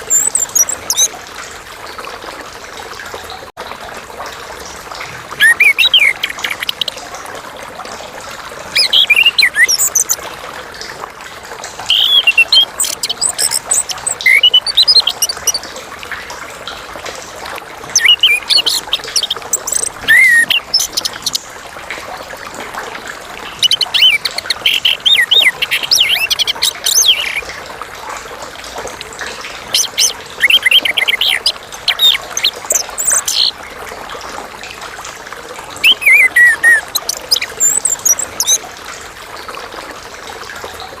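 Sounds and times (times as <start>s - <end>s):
thrush singing whistled trills: 0.0s - 1.1s, 5.4s - 7.0s, 8.7s - 10.2s, 11.9s - 15.6s, 17.9s - 21.4s, 23.5s - 27.5s, 29.7s - 33.5s, 35.8s - 38.6s.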